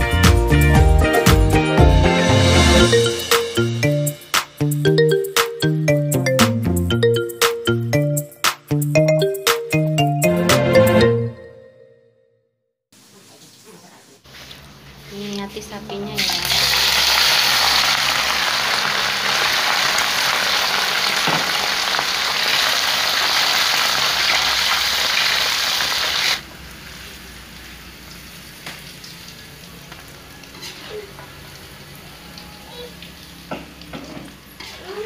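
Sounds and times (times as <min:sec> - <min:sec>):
meat sizzling in hot oil: 0:16.2 - 0:32.1.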